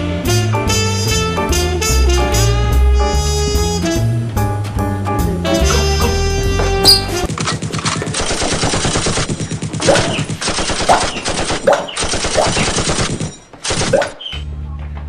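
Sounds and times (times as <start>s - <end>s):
automatic gunfire: 7.2s - 14.3s.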